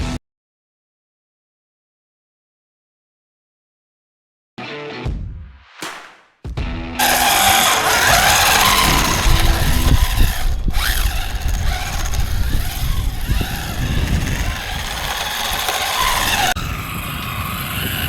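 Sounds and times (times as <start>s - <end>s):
electric motor whining: 7.0s - 18.0s
tyre and road noise: 7.0s - 18.0s.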